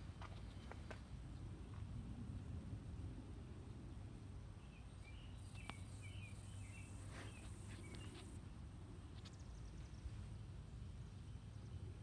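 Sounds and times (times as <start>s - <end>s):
faint bird chirps: 4.6s - 8.5s.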